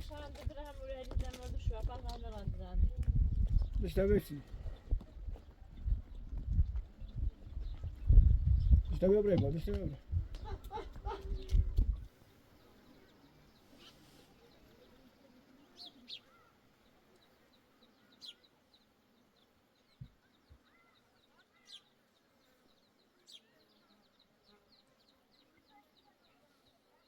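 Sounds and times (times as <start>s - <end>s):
dull low knock: 8.5s - 10.4s
faint small-bird chirps: 10.6s - 27.0s.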